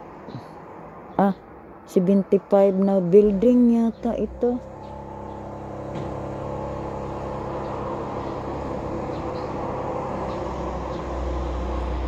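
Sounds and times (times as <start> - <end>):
car engine running: 3.1 - 12.0.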